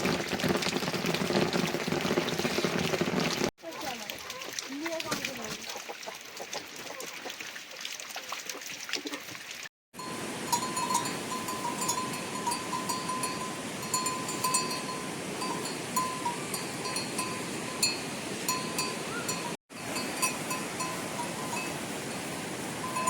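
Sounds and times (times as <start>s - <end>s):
livestock bells clinking: 10.0s - 21.8s.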